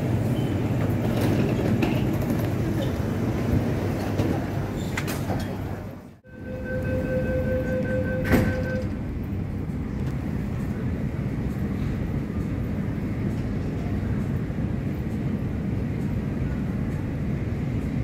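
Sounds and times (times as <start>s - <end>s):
electric train rumble: 0.0s - 18.0s
door-closing warning tone: 6.3s - 9.0s.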